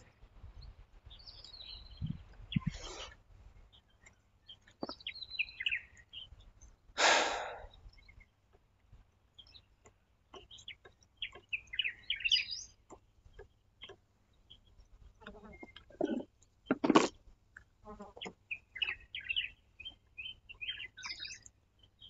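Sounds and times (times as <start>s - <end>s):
small birds chirping: 0.0s - 22.0s
short breathy rush: 7.0s - 7.8s.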